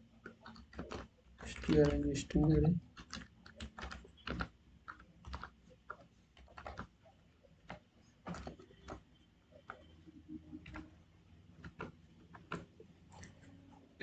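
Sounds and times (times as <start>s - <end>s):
computer keyboard keystrokes: 0.2s - 6.9s, 7.6s - 9.9s, 10.5s - 10.9s, 11.6s - 13.4s.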